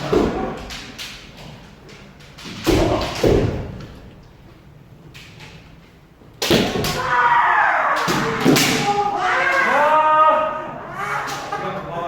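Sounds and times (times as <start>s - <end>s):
person shouting: 7.0s - 11.5s.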